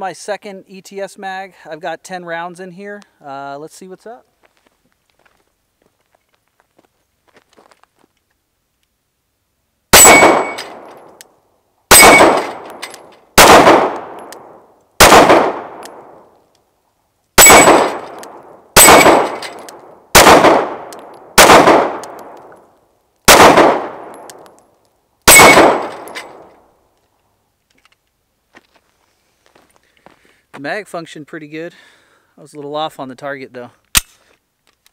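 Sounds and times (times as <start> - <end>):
pistol shots: 9.9 - 10.9, 11.9 - 12.8, 13.4 - 16.2, 17.4 - 22.4, 23.3 - 24.4, 25.3 - 26.5.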